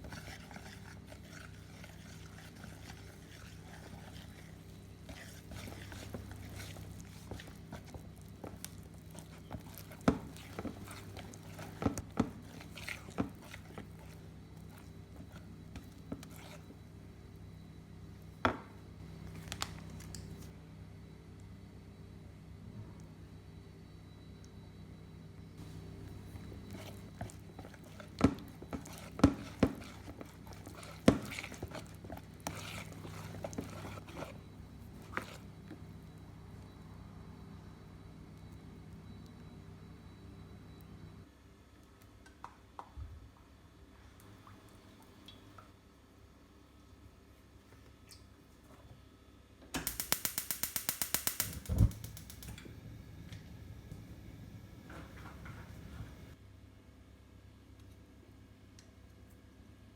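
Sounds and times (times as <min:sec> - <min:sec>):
gas stove igniter clicking: 0:49.7 - 0:52.7
low whump of burner igniting: 0:49.7 - 0:56.4.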